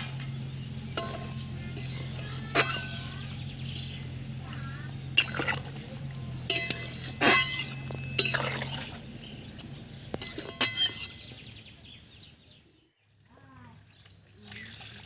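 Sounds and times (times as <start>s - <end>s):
metal dishes clinking: 0.0s - 11.5s.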